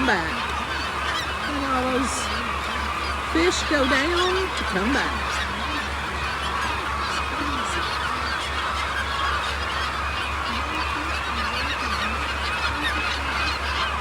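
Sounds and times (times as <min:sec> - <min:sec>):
flock of gulls calling: 0:00.0 - 0:14.0
steady low hum: 0:00.0 - 0:14.0.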